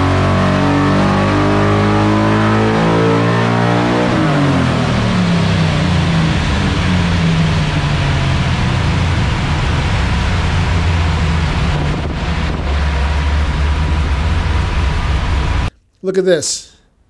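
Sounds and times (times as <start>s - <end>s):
truck engine winding down: 0.0s - 15.7s
loud even rush of noise: 4.8s - 15.7s.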